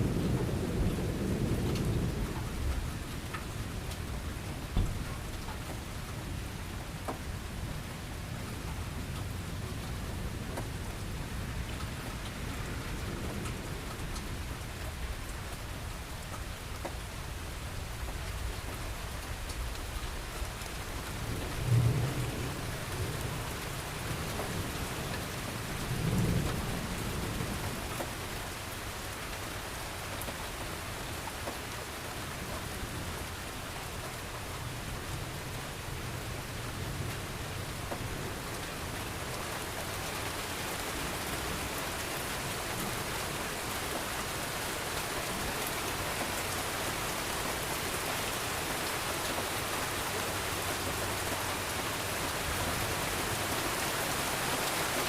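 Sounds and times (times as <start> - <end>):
thunder rumbling: 0.0 - 5.4, 21.0 - 27.9
steady rain falling: 0.0 - 55.0.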